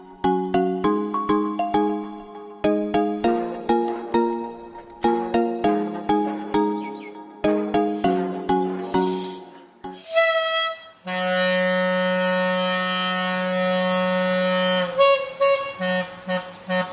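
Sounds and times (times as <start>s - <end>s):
struck musical notes: 0.0s - 16.9s
balloon horn reedy low note: 5.0s - 16.9s.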